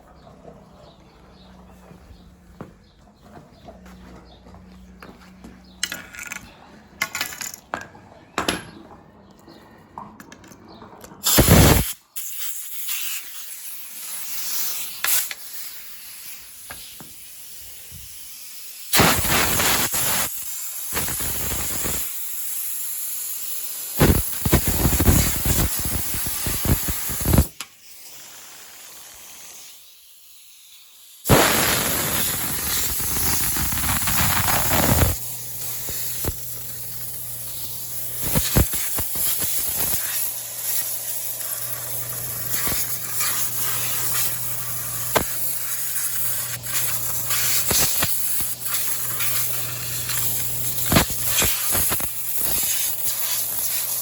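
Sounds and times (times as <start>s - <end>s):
spray nozzle hissing: 11.2s - 54.0s.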